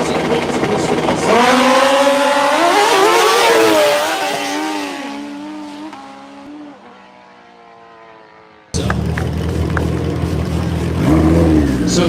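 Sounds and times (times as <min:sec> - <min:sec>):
motorcycles accelerating at full throttle: 0:00.0 - 0:12.0.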